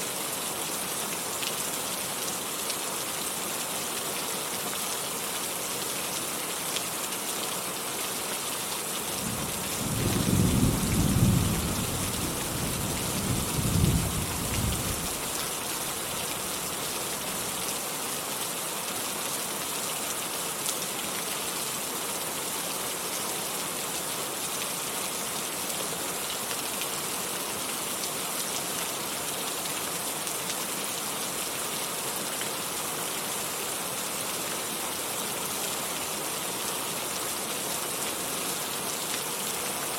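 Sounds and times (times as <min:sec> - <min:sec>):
heavy rain hiss: 0:00.0 - 0:39.9
thunder rumbling: 0:09.2 - 0:15.0.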